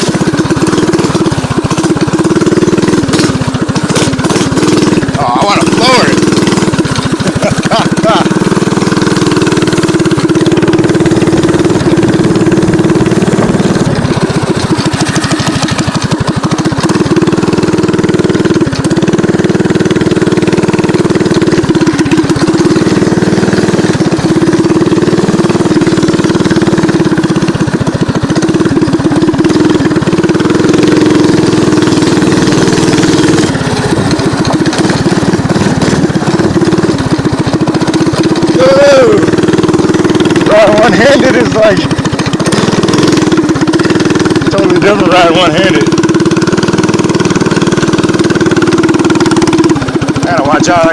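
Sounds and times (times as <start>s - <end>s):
mini bike engine running: 0.0s - 50.9s.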